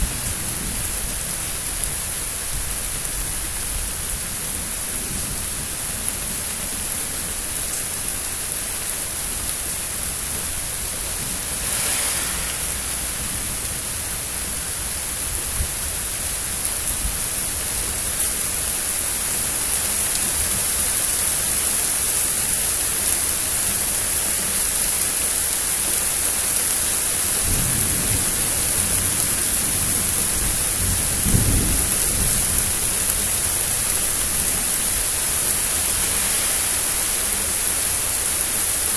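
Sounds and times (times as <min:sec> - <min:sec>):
rain hiss: 0:00.0 - 0:38.9
thunder rumbling: 0:10.8 - 0:18.0, 0:27.4 - 0:35.1.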